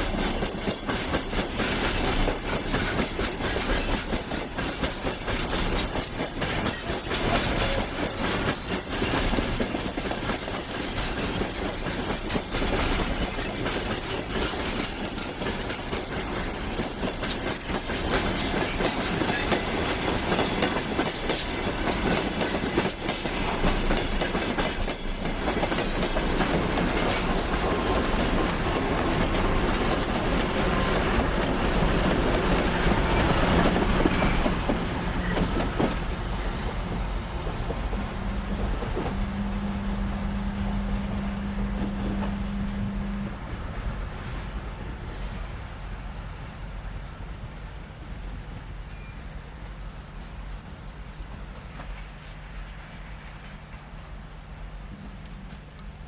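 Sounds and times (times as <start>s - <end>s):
wheels clicking over rail joints: 0.0s - 36.1s
train wheels on rails: 0.0s - 56.0s.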